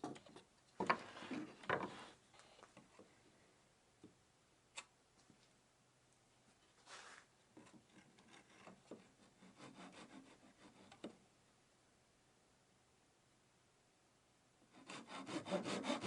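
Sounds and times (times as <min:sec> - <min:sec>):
rubbing and scraping on wood: 0:00.8 - 0:03.0, 0:06.8 - 0:11.1, 0:14.9 - 0:16.0.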